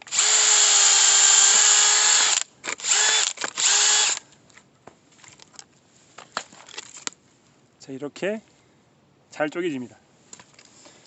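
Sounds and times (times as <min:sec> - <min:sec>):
power drill motor spinning: 0:00.0 - 0:04.2.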